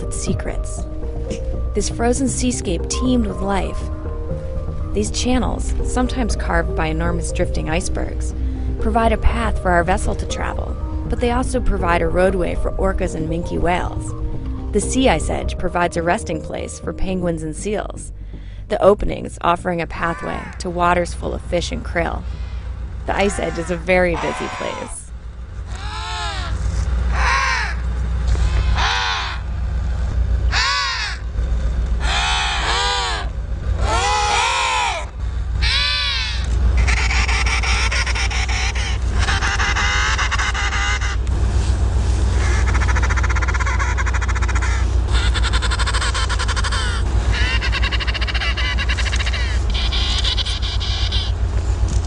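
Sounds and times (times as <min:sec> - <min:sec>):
low steady rumble: 0:00.0 - 0:52.0
penguins calling: 0:19.8 - 0:21.0, 0:23.1 - 0:25.1, 0:25.7 - 0:29.5, 0:30.5 - 0:31.2, 0:32.0 - 0:41.3, 0:42.4 - 0:51.4.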